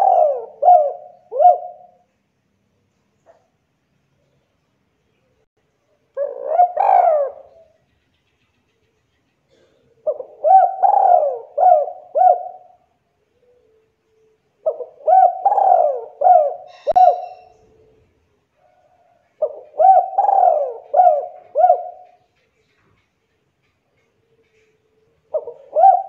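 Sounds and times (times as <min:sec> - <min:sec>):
dove cooing: 0:00.0 - 0:02.1, 0:06.2 - 0:07.8, 0:09.5 - 0:13.9, 0:14.6 - 0:22.4, 0:24.0 - 0:26.0.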